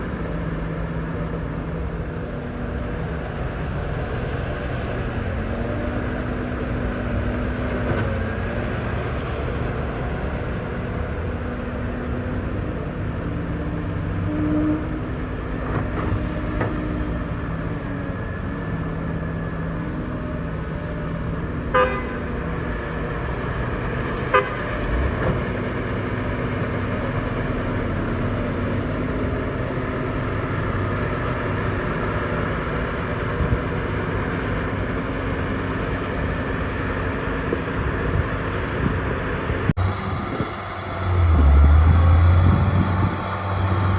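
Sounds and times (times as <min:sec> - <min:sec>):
heavy diesel machinery running: 0:00.0 - 0:43.9.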